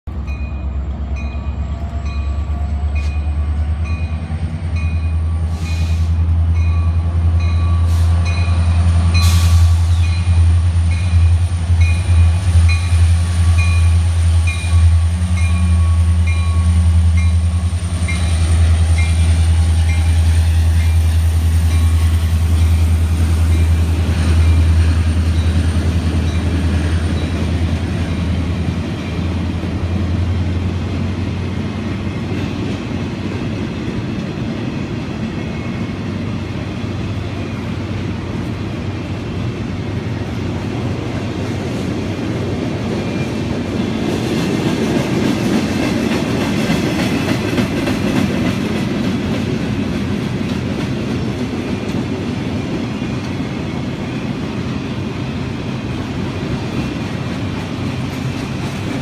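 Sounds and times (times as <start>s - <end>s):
locomotive bell ringing: 0.1s - 29.5s
locomotive engine deep rumble: 0.1s - 44.1s
freight cars rolling on rails: 0.1s - 59.0s.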